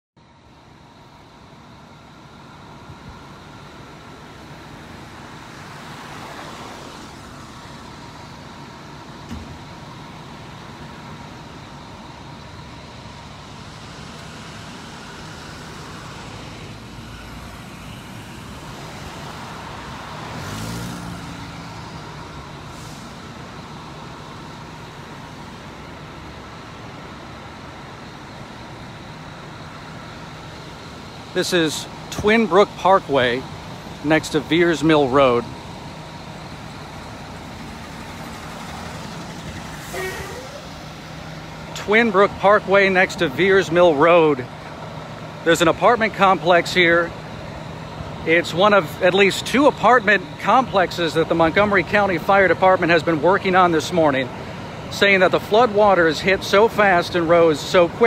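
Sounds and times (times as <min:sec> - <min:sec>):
passing vehicles: 0:00.2 - 0:58.0
loud vehicle passing: 0:13.5 - 0:23.6.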